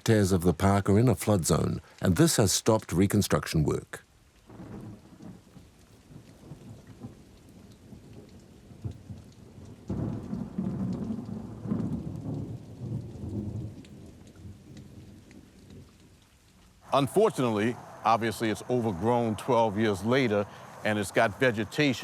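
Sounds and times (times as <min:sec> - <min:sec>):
steady rain: 0:00.0 - 0:22.0
thunder rumbling: 0:06.1 - 0:15.9, 0:16.8 - 0:22.0.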